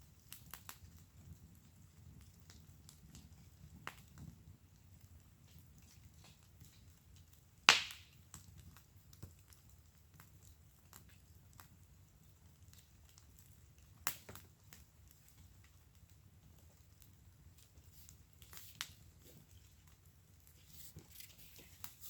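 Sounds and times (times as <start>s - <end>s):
wood fire crackling: 0.0s - 22.0s
loud sharp fire pops: 7.7s - 8.5s, 14.0s - 14.5s.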